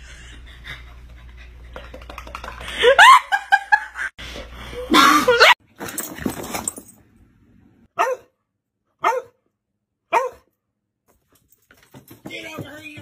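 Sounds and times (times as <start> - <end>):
dog barking: 8.0 - 8.4, 9.0 - 9.4, 10.1 - 10.5.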